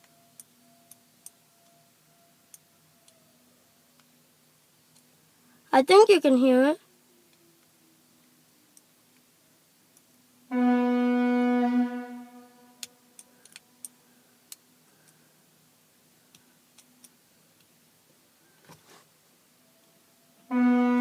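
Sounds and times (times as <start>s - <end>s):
fire alarm horn blast: 10.5s - 12.8s, 20.5s - 21.0s
small clicks: 12.8s - 15.2s.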